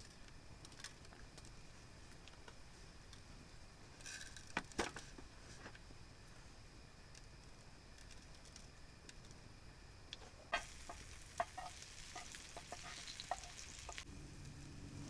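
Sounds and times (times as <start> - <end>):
low steady hum: 0.0 - 15.0
food sizzling in a pan: 10.4 - 15.0.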